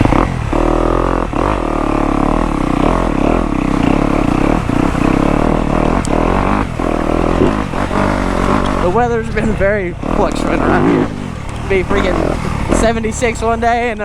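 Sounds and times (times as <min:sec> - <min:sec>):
dirt bike engine running: 0:00.0 - 0:14.0.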